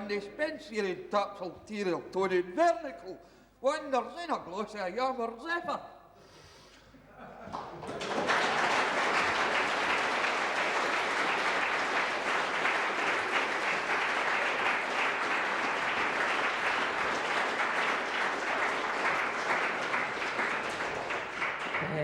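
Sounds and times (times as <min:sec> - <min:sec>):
audience applauding: 0:07.5 - 0:22.0.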